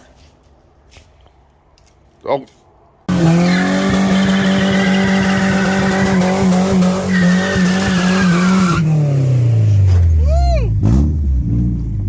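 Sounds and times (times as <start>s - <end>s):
engine revving high: 3.1s - 9.8s, 10.8s - 11.9s
tire squealing: 3.1s - 12.0s.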